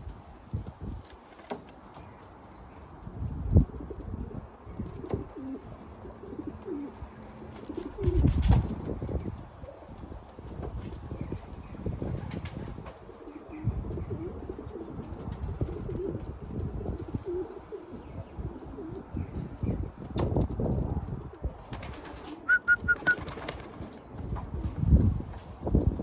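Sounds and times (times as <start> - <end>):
pigeons cooing: 3.7 - 19.6.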